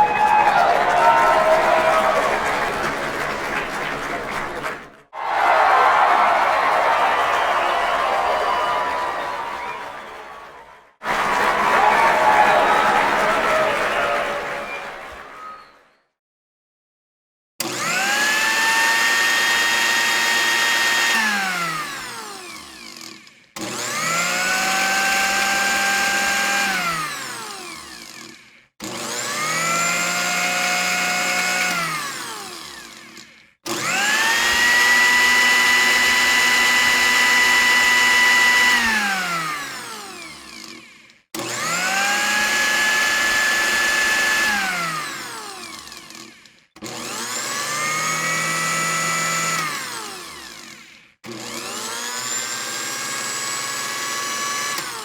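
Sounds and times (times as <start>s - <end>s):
electric drill motor whining: 17.6s - 55.0s.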